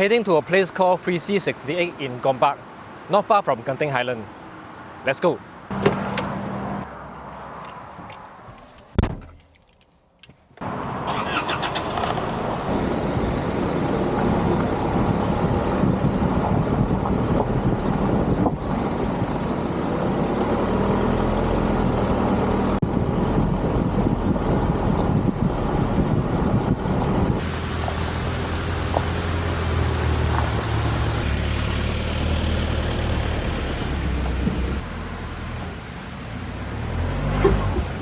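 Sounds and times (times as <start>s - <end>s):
car engine starting and running: 10.6s - 38.0s.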